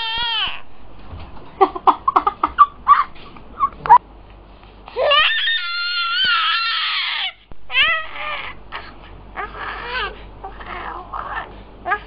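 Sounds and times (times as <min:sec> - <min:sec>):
baby squealing: 0:05.0 - 0:12.0.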